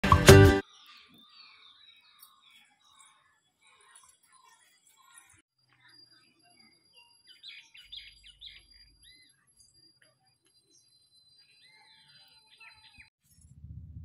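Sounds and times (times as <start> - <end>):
small birds chirping: 0.6 - 13.2
low hum: 13.3 - 14.0.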